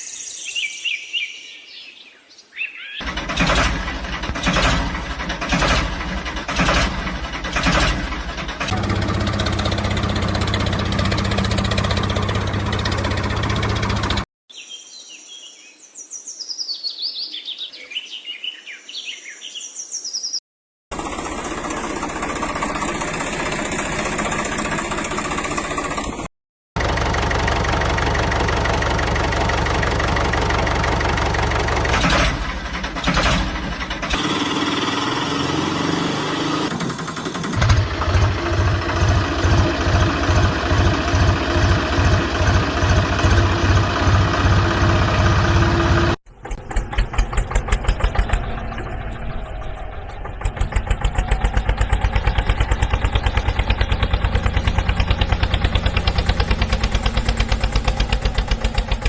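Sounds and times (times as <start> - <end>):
birds chirping: 0.0 - 3.0, 46.6 - 54.8
tractor engine running: 3.0 - 14.3, 20.9 - 59.0.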